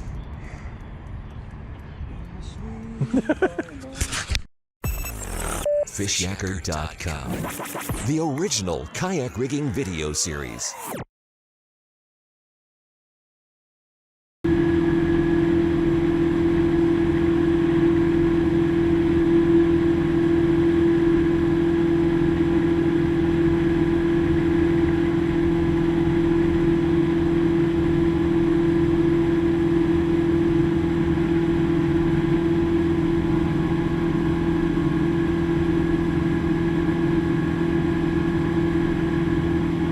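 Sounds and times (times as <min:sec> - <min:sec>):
jet boat motor droning: 0:14.5 - 0:39.9.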